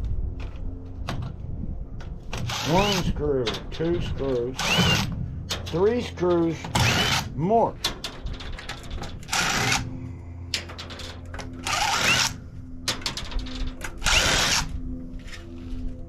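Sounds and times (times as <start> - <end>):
power drill motor spinning up: 2.5 - 3.0, 4.6 - 5.1, 6.8 - 7.2, 9.3 - 9.8, 11.6 - 12.4, 14.0 - 14.7
small clicks and rattles: 7.8 - 9.8.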